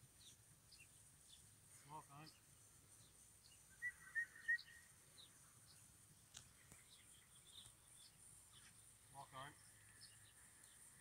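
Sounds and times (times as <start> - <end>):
faint bird chirps: 0.1 - 11.0
faint clicks: 6.3 - 6.9.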